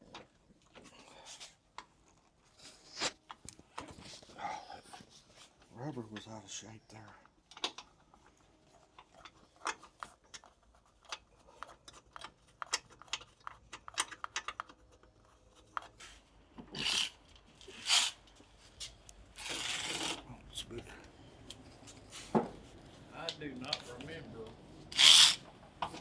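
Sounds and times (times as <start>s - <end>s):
light clicks and taps of parts: 7.1s - 16.7s
scraping rubs: 25.0s - 25.4s.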